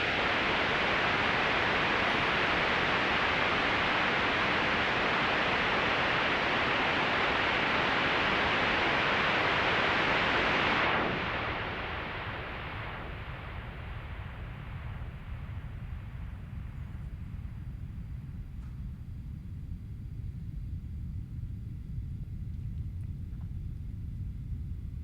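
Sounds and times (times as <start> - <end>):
synthesized noise hiss: 0.0 - 19.6.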